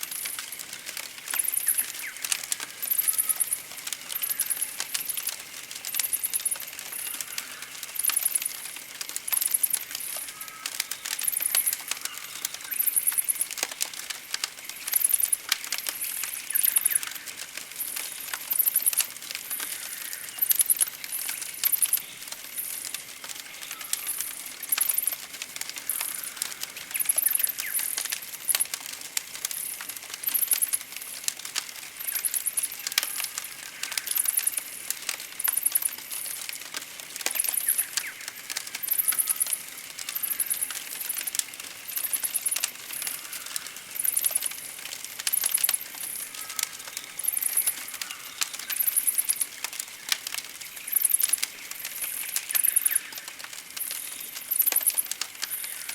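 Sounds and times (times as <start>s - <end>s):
campfire crackling: 0.0s - 55.9s.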